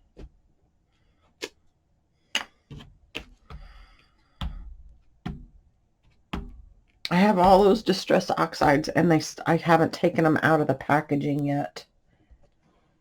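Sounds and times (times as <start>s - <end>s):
rubber stamp tapping: 4.4s - 6.7s.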